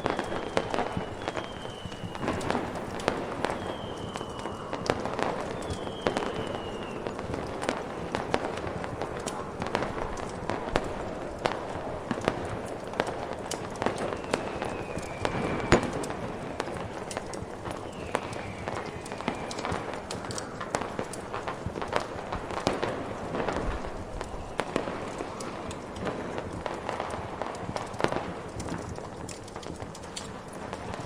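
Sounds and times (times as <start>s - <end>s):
firework whistles sliding down: 0.0s - 7.7s, 13.8s - 20.8s
crackling fire: 0.0s - 31.0s
fireworks popping and crackling: 0.0s - 31.0s
firework bang: 0.5s - 7.4s, 13.9s - 17.8s
snowstorm wind hissing: 1.8s - 5.2s.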